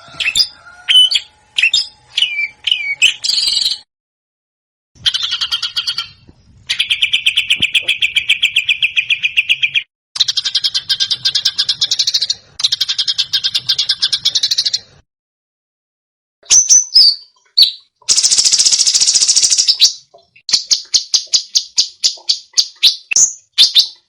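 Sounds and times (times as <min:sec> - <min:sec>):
songbird trilling and chirping: 0:00.0 - 0:03.8, 0:16.5 - 0:24.0.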